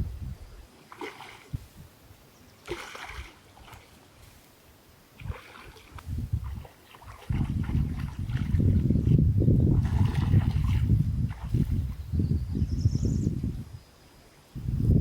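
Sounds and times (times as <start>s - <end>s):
water splashing: 0.7s - 1.9s, 2.6s - 12.1s.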